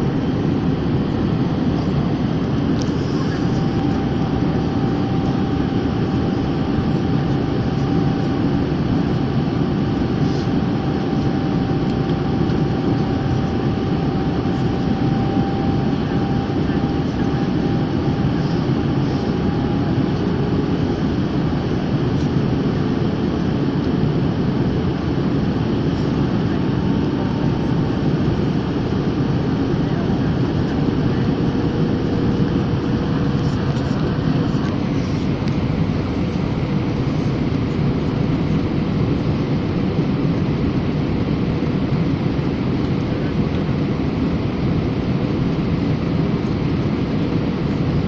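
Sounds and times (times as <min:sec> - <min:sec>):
airplane cabin noise in flight: 0:00.0 - 0:48.0.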